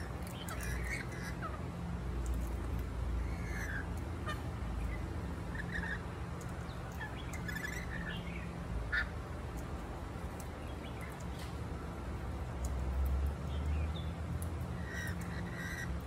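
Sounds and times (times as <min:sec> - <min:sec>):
clicky bird chatter: 0:00.0 - 0:01.6, 0:02.2 - 0:08.3, 0:08.9 - 0:11.7, 0:12.5 - 0:16.0
bird calls and squawks: 0:00.0 - 0:01.8, 0:03.2 - 0:09.2, 0:14.7 - 0:16.0.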